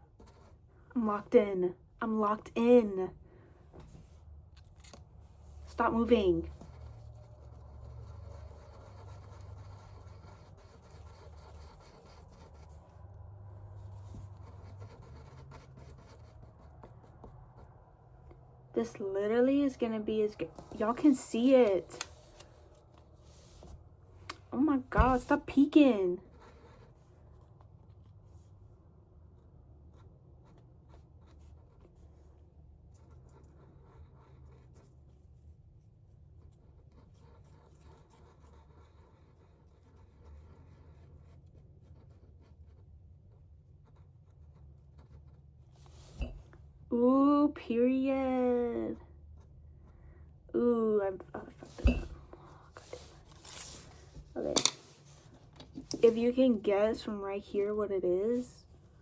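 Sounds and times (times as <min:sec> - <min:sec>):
low room hum: 0:00.0 - 0:59.0
paintbrush scratchy rubbing: 0:05.7 - 0:17.6, 0:52.5 - 0:56.9.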